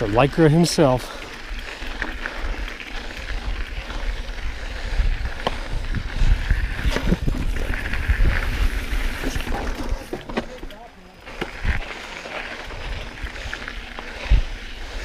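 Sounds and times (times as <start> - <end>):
bike clicks and rattles: 0.0 - 15.0
bike tyres rumbling on dirt: 0.0 - 15.0
wind on microphone: 3.0 - 10.1, 11.5 - 12.0, 12.7 - 15.0.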